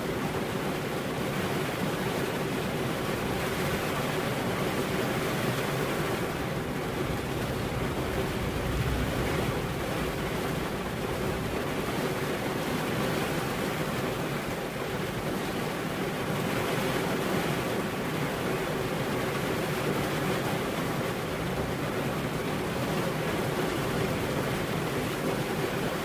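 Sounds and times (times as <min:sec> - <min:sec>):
steady rain falling: 0:00.0 - 0:26.0
low rumble: 0:06.8 - 0:12.0.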